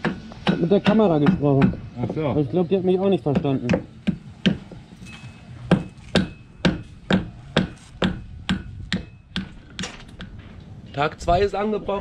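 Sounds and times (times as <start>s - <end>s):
hammer striking metal shaft: 3.3s - 10.4s.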